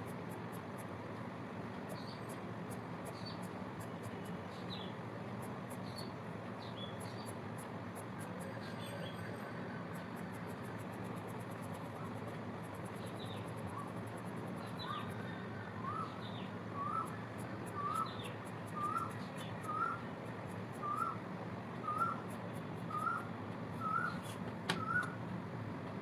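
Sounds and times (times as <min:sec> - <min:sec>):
steady background hum: 0:00.0 - 0:26.0
bird chirping: 0:15.8 - 0:20.0, 0:20.8 - 0:21.2, 0:21.8 - 0:22.3, 0:22.9 - 0:25.2.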